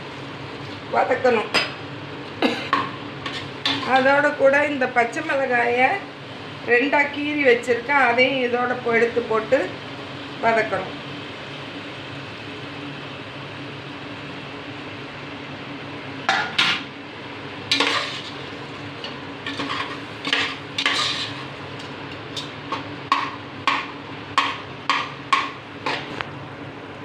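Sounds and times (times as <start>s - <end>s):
ladle scraping a pot: 17.7s - 18.4s, 19.5s - 21.5s.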